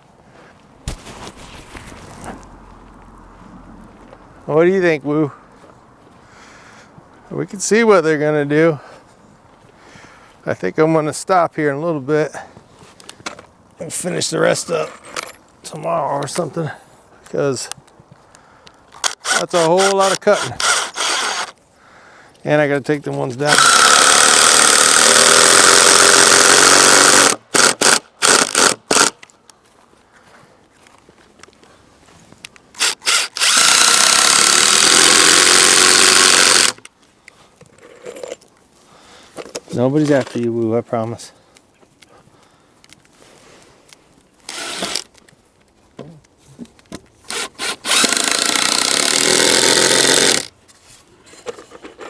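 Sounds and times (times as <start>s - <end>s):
power tool motor running: 19.0s - 21.5s, 23.5s - 29.1s, 32.8s - 36.8s, 44.5s - 45.0s, 47.3s - 50.5s
power tool trigger bursts: 19.0s - 21.6s, 23.5s - 29.2s, 32.8s - 36.8s, 44.5s - 45.1s, 47.3s - 50.5s.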